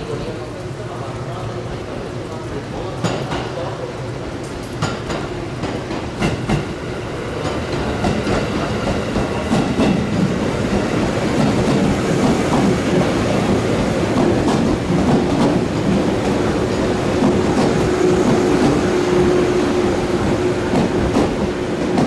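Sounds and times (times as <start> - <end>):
train wheels clicking over rail joints: 4.4 - 6.8, 7.4 - 22.0.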